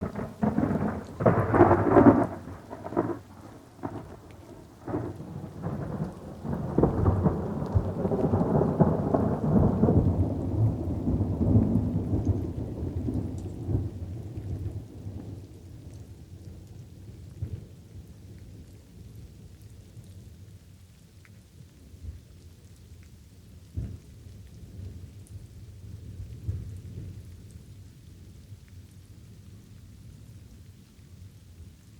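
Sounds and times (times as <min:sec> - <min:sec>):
thunder cracking and rumbling: 0:00.0 - 0:16.2
light rain: 0:00.0 - 0:31.9.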